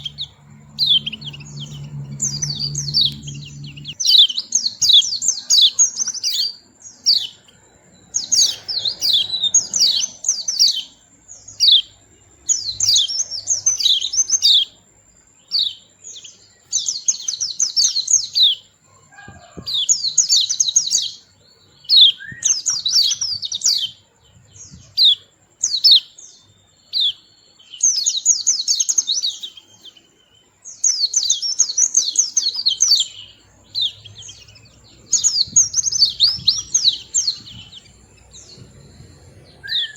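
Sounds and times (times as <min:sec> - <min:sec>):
bird twittering: 0:00.0 - 0:14.8, 0:15.4 - 0:39.9.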